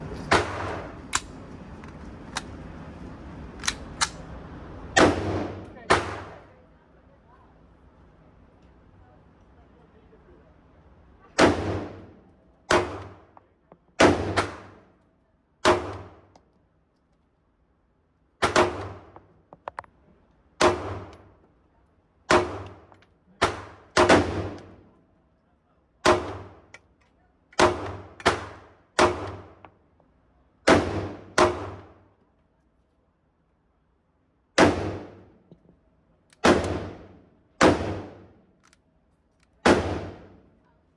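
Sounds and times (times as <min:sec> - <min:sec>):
pistol shots: 0:00.3 - 0:01.3, 0:05.0 - 0:06.4, 0:11.4 - 0:12.1, 0:12.7 - 0:13.3, 0:14.0 - 0:14.8, 0:18.4 - 0:19.2, 0:20.6 - 0:21.3, 0:22.3 - 0:24.7, 0:26.0 - 0:26.7, 0:27.6 - 0:29.6, 0:30.7 - 0:32.0, 0:34.6 - 0:35.2, 0:36.4 - 0:38.4, 0:39.6 - 0:40.4.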